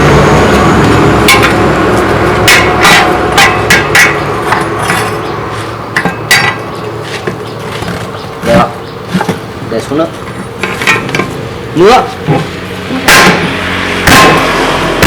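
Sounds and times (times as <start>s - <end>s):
steady machine noise: 0.0s - 15.0s
hammer striking metal: 1.1s - 7.4s, 12.3s - 15.0s.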